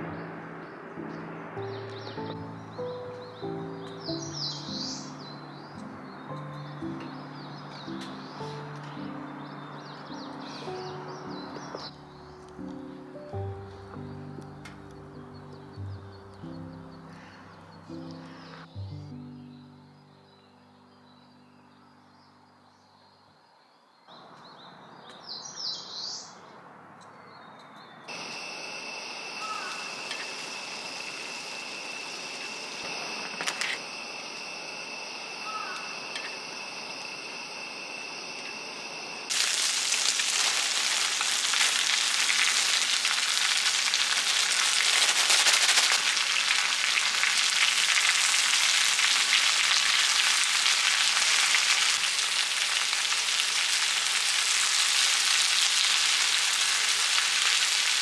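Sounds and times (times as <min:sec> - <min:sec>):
bird chirps: 0:00.1 - 0:28.2
high-pitched whine: 0:28.1 - 0:39.3
food sizzling in a pan: 0:29.4 - 0:32.8, 0:39.3 - 0:58.0
faint hiss: 0:39.3 - 0:58.0.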